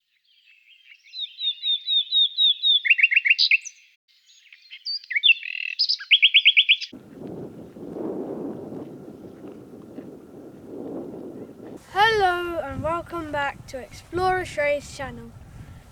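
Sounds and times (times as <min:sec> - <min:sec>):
songbird chirps and trills: 0:00.1 - 0:07.8.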